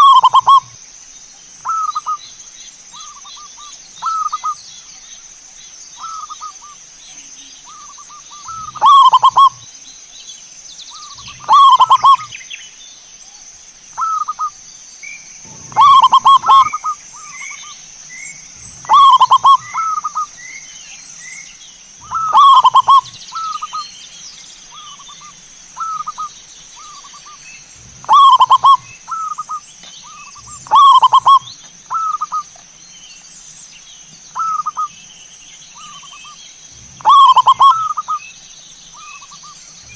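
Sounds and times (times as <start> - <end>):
dove cooing: 0.0 - 0.7, 7.7 - 9.6, 11.0 - 12.4, 15.4 - 17.7, 18.6 - 20.3, 22.0 - 23.8, 25.8 - 32.5, 36.8 - 38.2.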